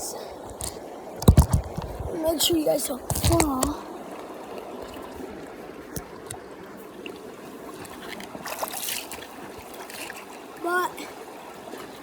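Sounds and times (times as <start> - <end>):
creek flowing and trickling: 0.0 - 12.0
faint knocks and clicks: 0.5 - 3.8.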